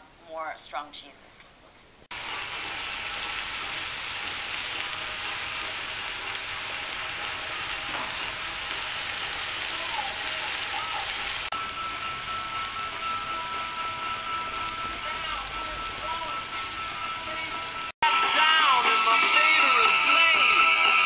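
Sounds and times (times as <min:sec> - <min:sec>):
vegetables frying in oil: 0:02.1 - 0:17.9
thin high tone: 0:10.7 - 0:17.9.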